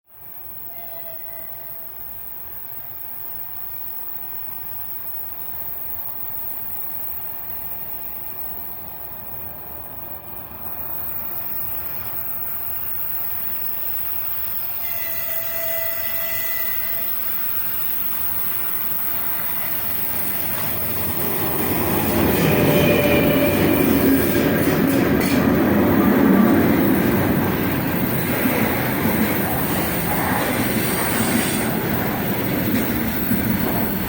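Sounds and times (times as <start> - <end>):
freight train passing: 0.1 - 34.0
train wheels on rails: 0.1 - 34.0
faint high squealing: 0.6 - 2.2, 14.7 - 17.6, 19.2 - 28.2.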